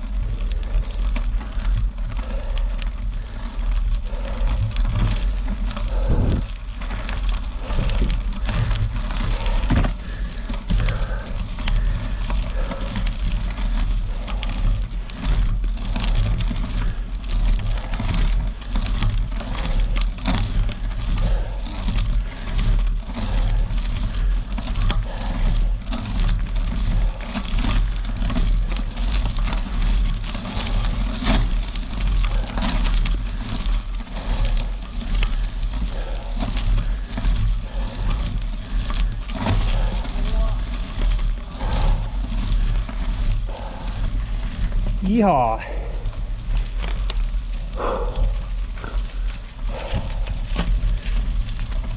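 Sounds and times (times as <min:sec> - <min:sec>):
wind buffeting microphone: 0:00.0 - 0:18.7, 0:33.2 - 0:51.9
bicycle tyres on gravel: 0:00.0 - 0:51.9.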